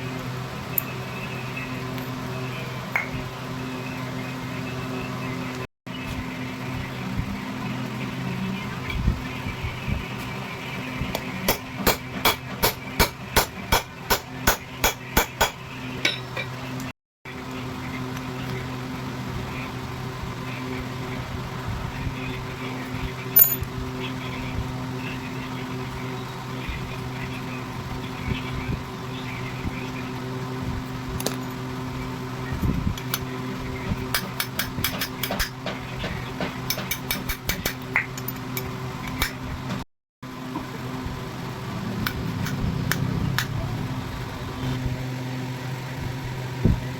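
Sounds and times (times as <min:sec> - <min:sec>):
low machine hum: 0:00.0 - 0:46.9
hammer striking metal: 0:11.5 - 0:16.3.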